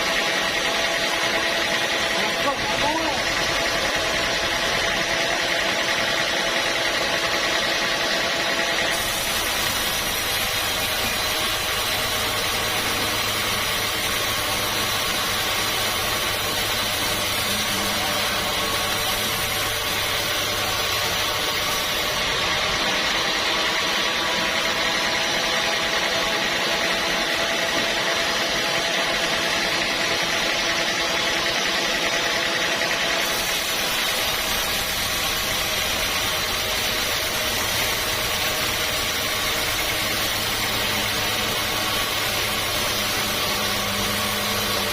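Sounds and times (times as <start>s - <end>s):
high mechanical whine: 0.0s - 44.9s
sawmill machinery drone: 0.0s - 44.9s.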